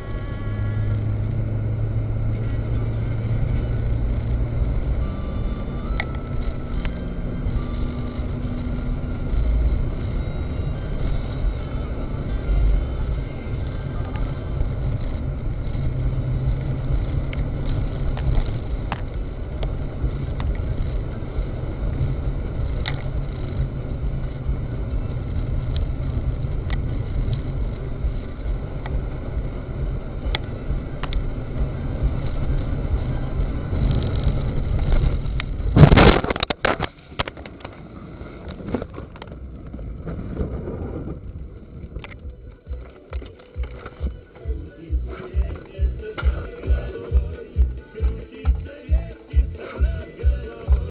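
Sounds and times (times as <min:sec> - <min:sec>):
car driving rumble: 0:00.0 - 0:50.9.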